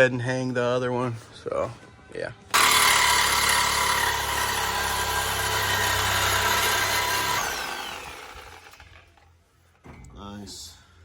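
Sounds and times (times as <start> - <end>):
power tool whine spinning down: 2.6 - 9.0.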